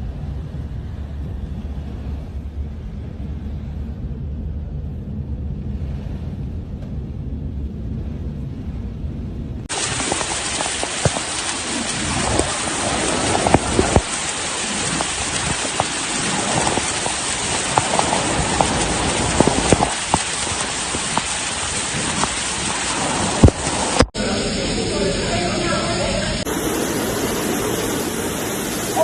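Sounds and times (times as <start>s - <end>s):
raindrops tapping surfaces: 9.7s - 24.1s
heavy rain hissing: 9.7s - 29.0s.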